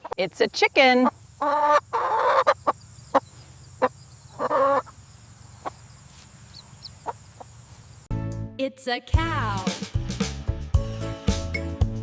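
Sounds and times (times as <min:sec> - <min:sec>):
chicken clucking: 0:00.0 - 0:05.9, 0:06.5 - 0:07.6.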